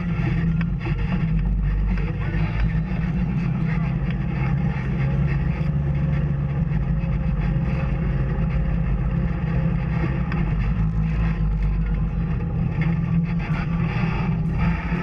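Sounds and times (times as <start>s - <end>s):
off-road vehicle engine running: 0.0s - 15.0s
road noise: 0.0s - 15.0s.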